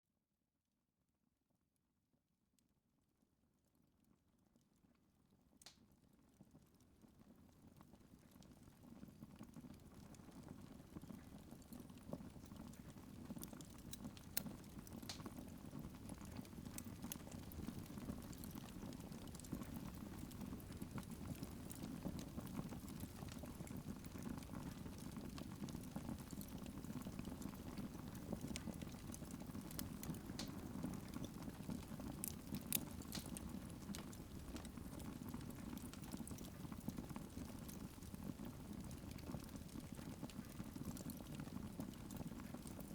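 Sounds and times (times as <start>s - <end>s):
fire crackling and popping: 8.2s - 42.9s.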